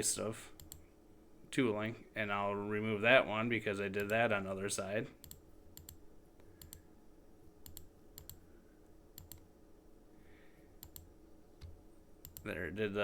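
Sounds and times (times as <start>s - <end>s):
faint low hum: 0.0s - 13.0s
computer mouse clicking: 0.6s - 0.8s, 5.2s - 6.8s, 7.6s - 8.4s, 9.2s - 9.4s, 10.8s - 12.5s.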